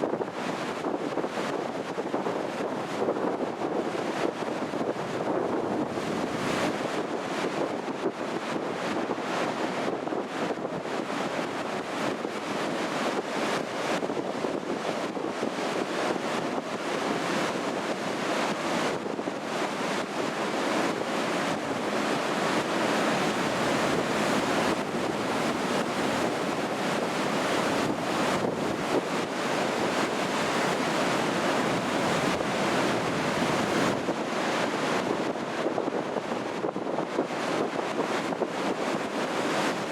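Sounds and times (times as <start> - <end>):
wind buffeting microphone: 0.0 - 17.9, 18.8 - 38.9
surf breaking on shore: 14.3 - 39.9.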